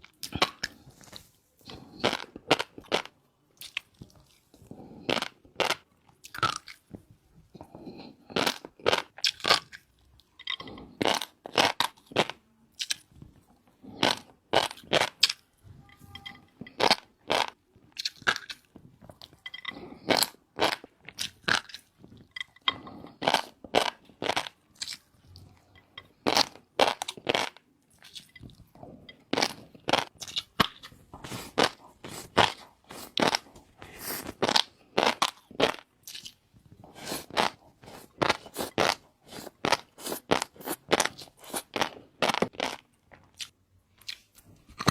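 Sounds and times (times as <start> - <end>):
person chewing crunchy food: 0.0 - 15.5, 16.1 - 44.9.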